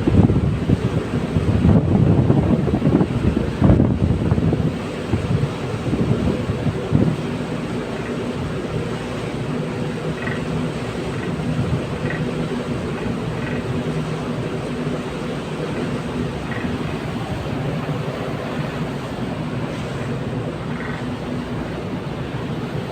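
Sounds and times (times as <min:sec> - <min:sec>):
ship engines rumbling: 0:00.0 - 0:22.9
wind buffeting microphone: 0:00.0 - 0:22.9.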